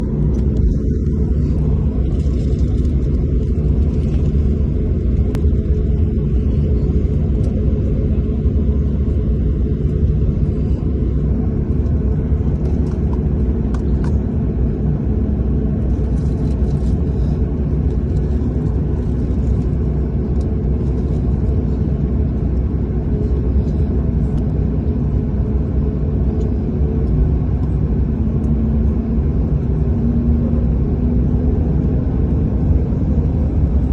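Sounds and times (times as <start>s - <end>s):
jet airliner taking off: 0.0s - 33.9s.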